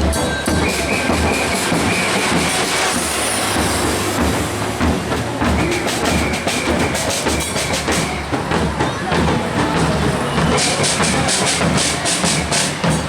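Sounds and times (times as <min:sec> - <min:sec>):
crowd noise: 0:00.0 - 0:13.0
drumming in a rattling rhythm: 0:00.0 - 0:13.0
high whistle-like tone: 0:00.2 - 0:03.8.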